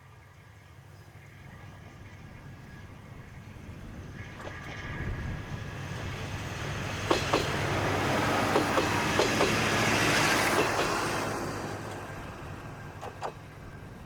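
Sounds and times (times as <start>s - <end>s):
diesel railcar engine humming: 0.0s - 14.0s
train wheels clicking over rail joints: 4.4s - 14.0s.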